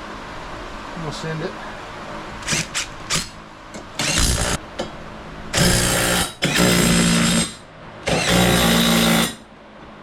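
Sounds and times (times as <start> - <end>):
power tool rattling: 4.0 - 4.6, 5.6 - 9.4.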